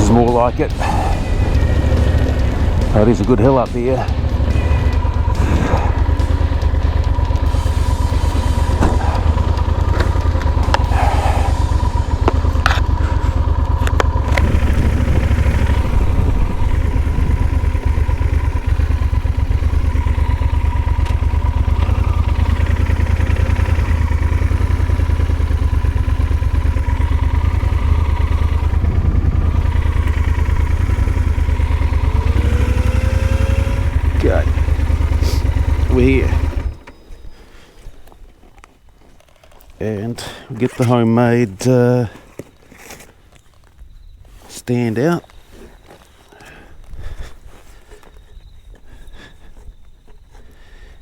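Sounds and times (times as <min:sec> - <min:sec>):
motorcycle engine rumbling: 0:00.0 - 0:51.0
sharp clicks: 0:08.7 - 0:15.9.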